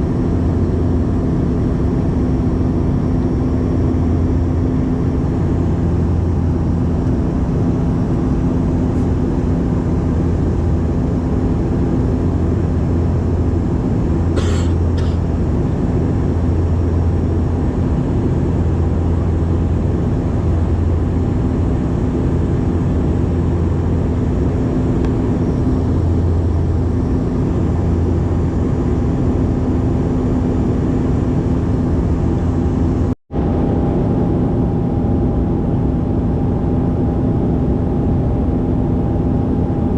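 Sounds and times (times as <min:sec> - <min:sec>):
propeller airliner cabin engine drone: 0:00.0 - 0:39.9.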